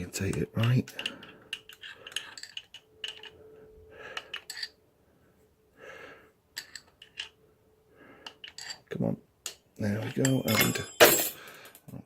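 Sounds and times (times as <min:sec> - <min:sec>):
soft breath: 0:03.2 - 0:06.8, 0:07.7 - 0:08.6
metal clutch plates clinking: 0:10.0 - 0:11.7.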